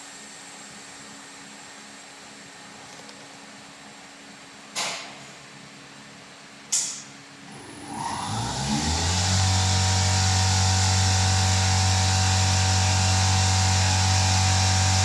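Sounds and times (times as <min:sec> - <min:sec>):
electric motor spinning up: 0:07.5 - 0:15.0.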